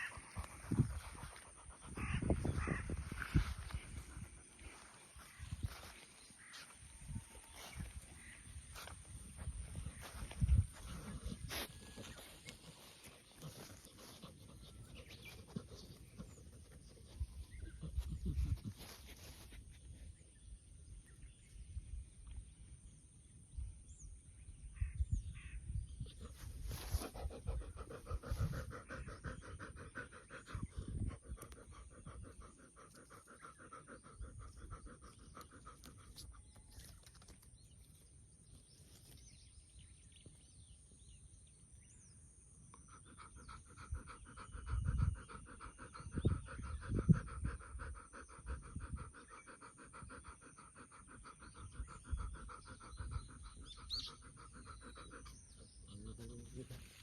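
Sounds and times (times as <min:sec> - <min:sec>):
dog panting heavily: 0:00.0 - 0:06.0, 0:08.8 - 0:19.7, 0:26.1 - 0:36.7, 0:42.8 - 0:56.6
birds chirping faintly: 0:00.0 - 0:57.0.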